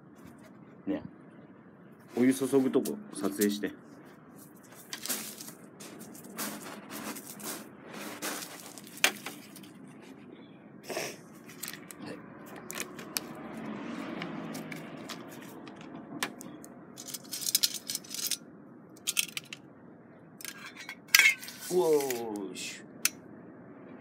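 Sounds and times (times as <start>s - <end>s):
metal cookware clinking: 20.4s - 21.7s.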